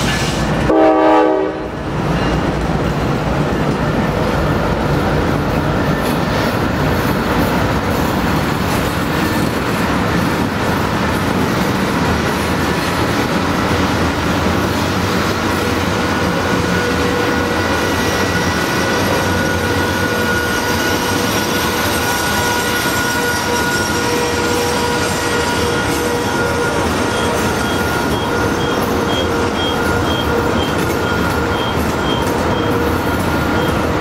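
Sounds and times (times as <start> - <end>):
freight train wheels rumbling: 0.0 - 34.0
high wheel squeal: 15.7 - 34.0.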